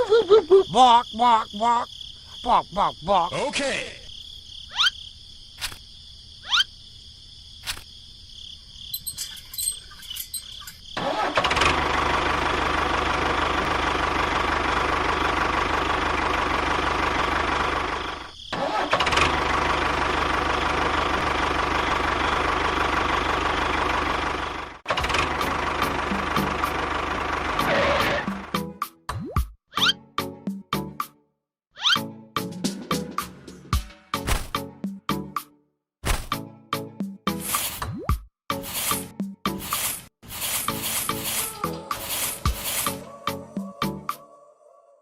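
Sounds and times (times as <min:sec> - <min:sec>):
engine running: 0:09.0 - 0:28.6, 0:38.6 - 0:43.6.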